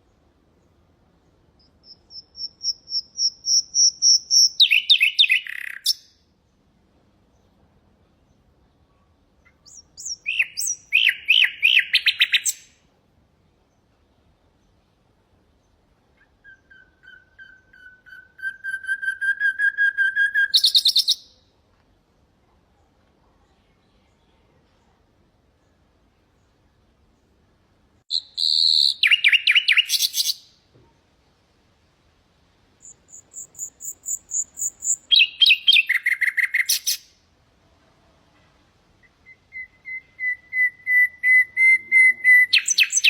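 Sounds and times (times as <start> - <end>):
nightingale singing: 0.0 - 6.2, 8.3 - 12.9, 15.6 - 21.4, 28.1 - 30.6, 32.8 - 37.2, 39.0 - 43.0.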